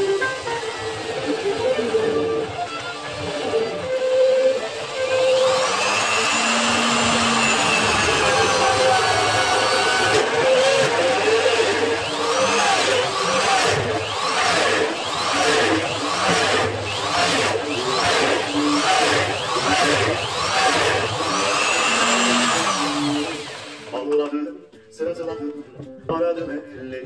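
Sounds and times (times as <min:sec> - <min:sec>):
power tool motor: 0:00.0 - 0:24.0.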